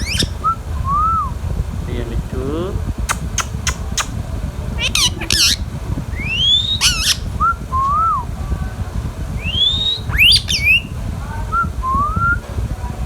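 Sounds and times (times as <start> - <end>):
parrot whistling and screeching: 0.0 - 1.3, 4.8 - 8.2, 9.4 - 10.9.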